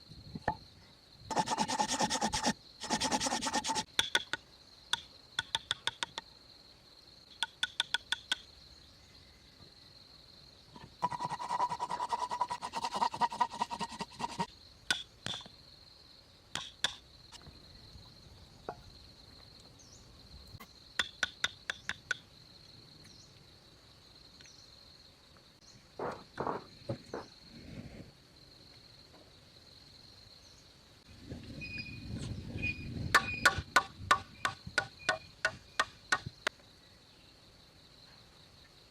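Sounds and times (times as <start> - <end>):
high insect chirr: 0.0 - 38.9
rasping scrape: 1.3 - 3.9, 10.8 - 14.5.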